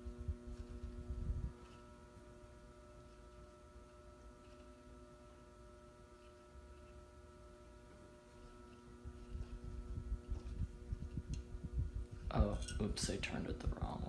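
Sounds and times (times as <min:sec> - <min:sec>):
ceiling fan motor hum: 0:00.0 - 0:14.0.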